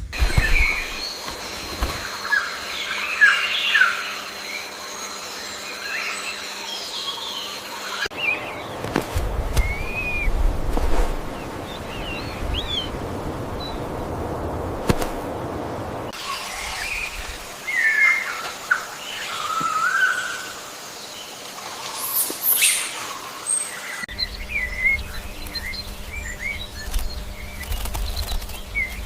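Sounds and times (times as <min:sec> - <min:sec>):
birds chirping: 0:00.0 - 0:29.0
low rumble: 0:09.1 - 0:16.1.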